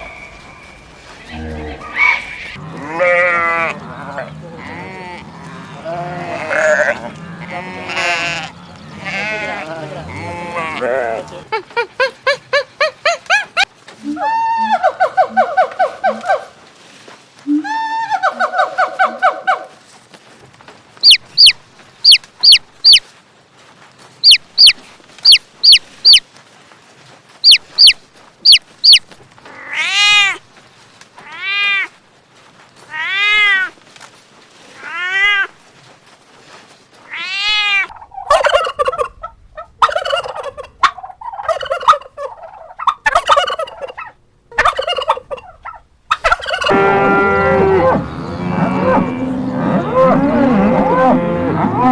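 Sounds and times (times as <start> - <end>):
drawn-out rising and falling calls: 0.0 - 11.5, 21.0 - 23.0, 24.2 - 26.2, 27.4 - 29.0, 37.1 - 51.9
rattling gobbling bird calls: 21.0 - 23.0, 24.2 - 26.2, 27.4 - 29.0, 37.9 - 46.9.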